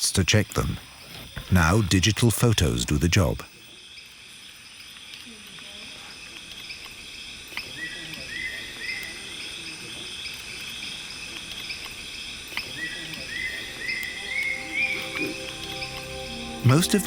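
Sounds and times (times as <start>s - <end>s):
insects droning: 10.1s - 17.0s.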